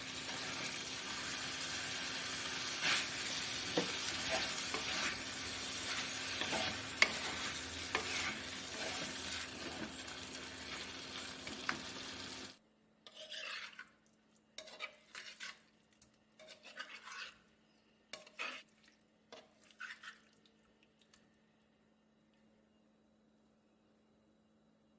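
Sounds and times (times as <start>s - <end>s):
chicken sizzling in a pan: 0.0s - 12.6s
utensil scraping a pan: 1.8s - 10.0s, 13.0s - 14.0s, 14.6s - 15.7s, 16.4s - 17.4s, 18.1s - 18.7s.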